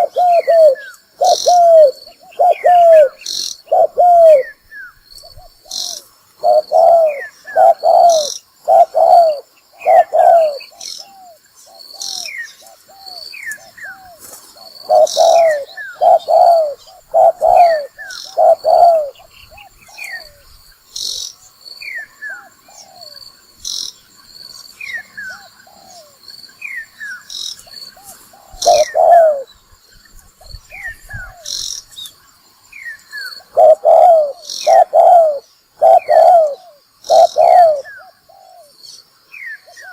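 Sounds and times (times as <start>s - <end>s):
dove cooing: 0.0s - 4.6s, 5.2s - 20.5s, 22.3s - 23.2s, 25.2s - 26.2s, 27.9s - 29.5s, 33.4s - 38.8s
insects buzzing: 0.0s - 39.9s
small birds chirping: 0.0s - 39.9s.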